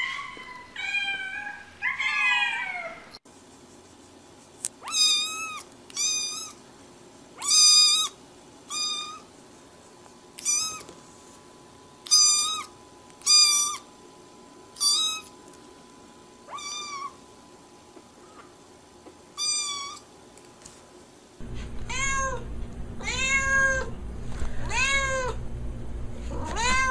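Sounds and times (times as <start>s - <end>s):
kittens mewing: 21.6s - 25.4s, 26.2s - 26.9s.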